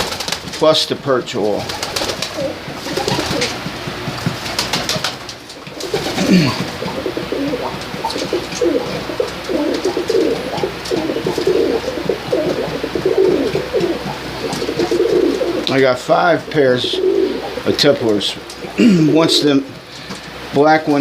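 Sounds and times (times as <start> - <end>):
pigeons cooing: 1.4 - 20.6.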